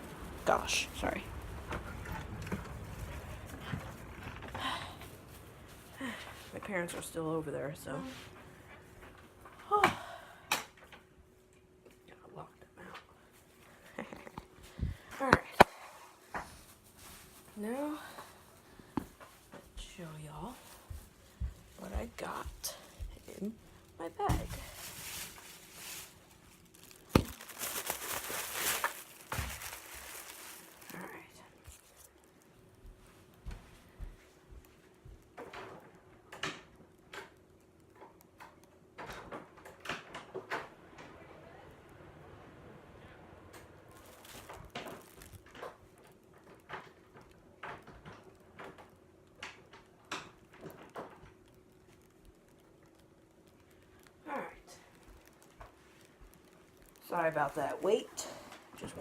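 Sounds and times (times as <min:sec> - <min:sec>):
shopping bag rustling: 0:21.8 - 0:32.7, 0:43.9 - 0:46.2.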